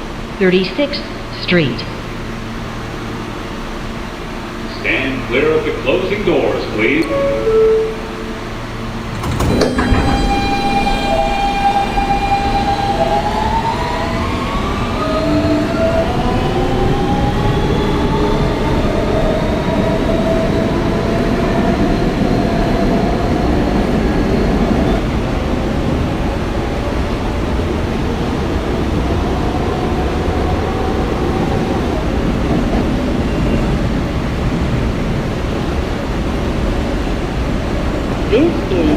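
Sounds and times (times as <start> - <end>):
wheels rumbling on rail: 2.0 - 38.9
traction motor whine rising: 4.7 - 25.0.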